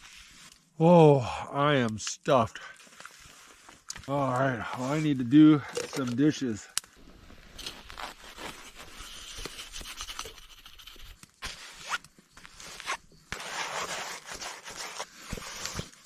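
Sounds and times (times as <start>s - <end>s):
scraping and rubbing strokes: 0.0s - 0.6s, 7.4s - 16.0s.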